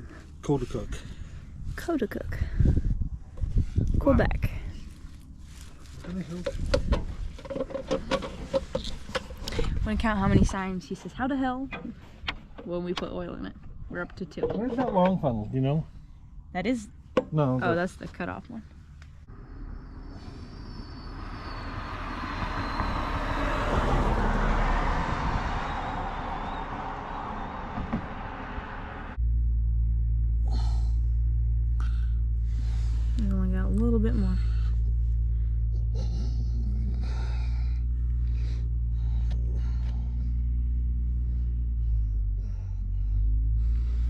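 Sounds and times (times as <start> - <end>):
motor vehicle passing by: 19.2 - 44.0
low machine hum: 25.5 - 44.0.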